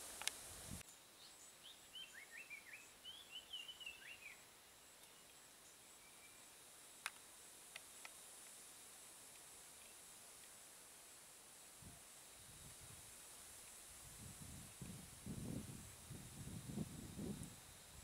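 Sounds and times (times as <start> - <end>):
small bird chirping: 0.9 - 4.4.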